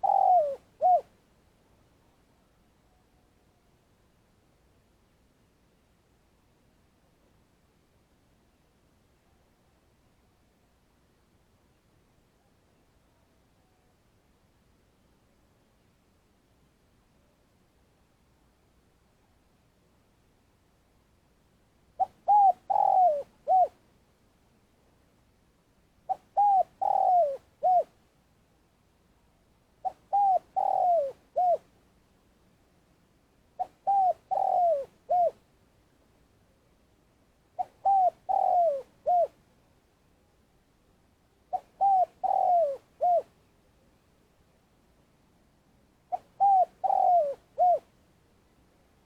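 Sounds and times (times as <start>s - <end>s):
dove cooing: 0.0s - 1.1s, 22.0s - 23.8s, 26.1s - 28.0s, 29.8s - 31.7s, 33.6s - 35.4s, 37.6s - 39.4s, 41.5s - 43.3s, 46.1s - 47.9s.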